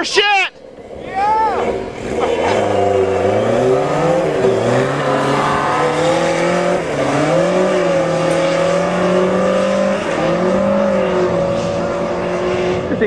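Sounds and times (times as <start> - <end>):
motorcycle engine revving: 0.6 - 13.0.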